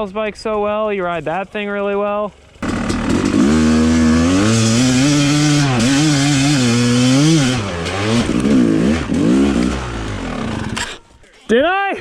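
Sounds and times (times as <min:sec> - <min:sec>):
dirt bike engine revving: 0:02.5 - 0:11.1.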